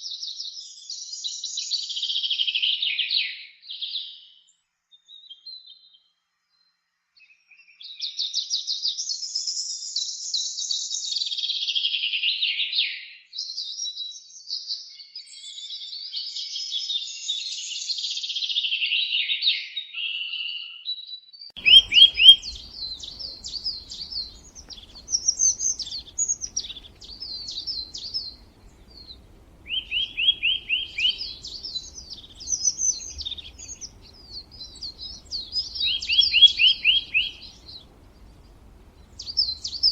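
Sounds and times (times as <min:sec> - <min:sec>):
faint low background hum: 0:21.6 - 0:39.9
songbirds chirping and singing: 0:21.6 - 0:39.9.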